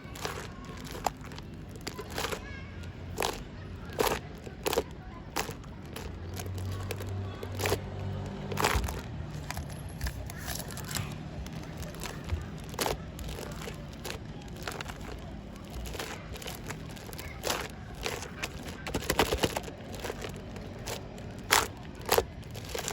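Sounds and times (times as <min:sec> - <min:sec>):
slime being squished by hand: 0:00.0 - 0:22.9.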